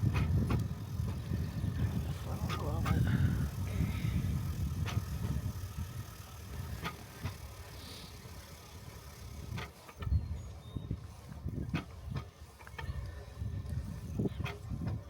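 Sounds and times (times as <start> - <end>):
steel wheels rumbling on rails: 0.0 - 10.0.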